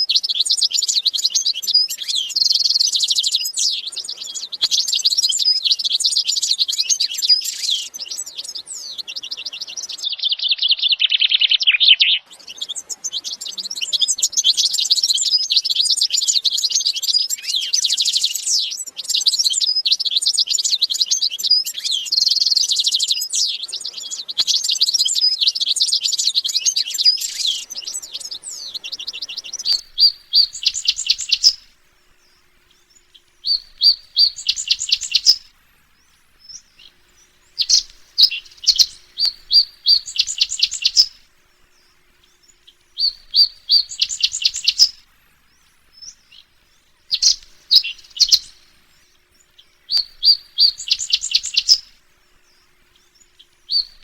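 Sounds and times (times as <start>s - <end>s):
small birds chirping and twittering: 0.0s - 54.0s.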